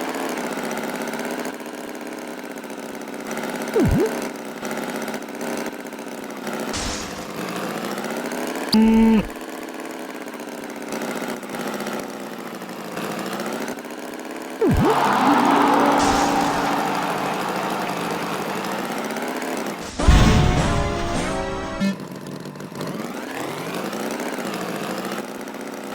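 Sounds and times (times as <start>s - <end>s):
cartoon tractor engine: 3.8s - 4.2s, 6.8s - 7.6s, 8.8s - 9.3s, 14.6s - 22.3s
quick pitch swoop: 3.8s - 4.2s, 14.6s - 19.1s
honk-like tone: 14.6s - 19.0s.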